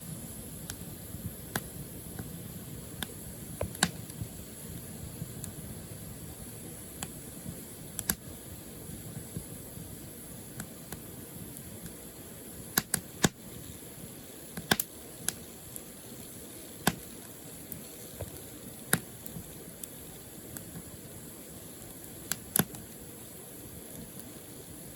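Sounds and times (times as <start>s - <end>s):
firewood crackling and popping: 0.1s - 24.9s.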